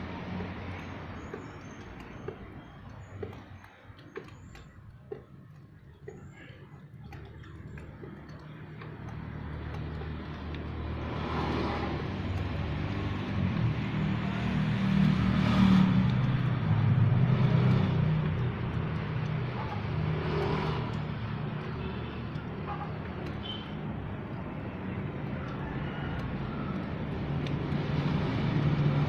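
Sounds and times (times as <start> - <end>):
motor vehicle engine passing: 0.0 - 29.0.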